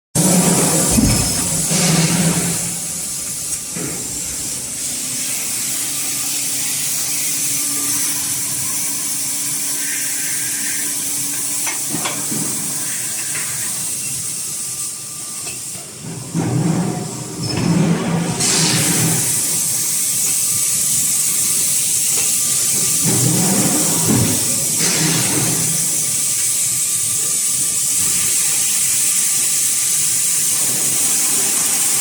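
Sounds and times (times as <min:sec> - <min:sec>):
low machine noise: 0:00.2 - 0:32.0
lubricant spray hissing: 0:00.8 - 0:11.1.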